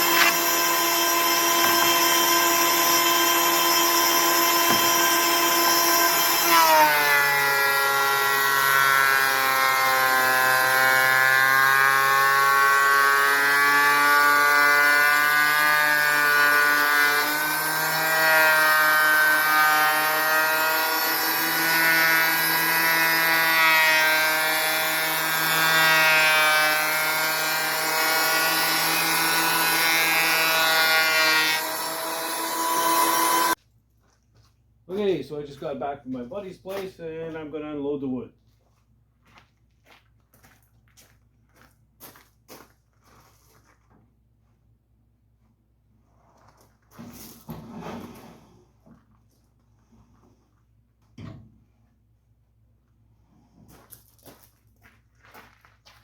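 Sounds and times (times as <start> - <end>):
woodworking machine cutting lumber: 0.0 - 33.6.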